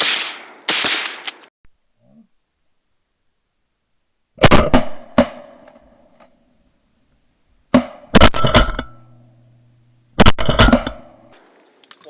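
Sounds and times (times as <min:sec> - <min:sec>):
shotguns firing: 0:00.0 - 0:01.5.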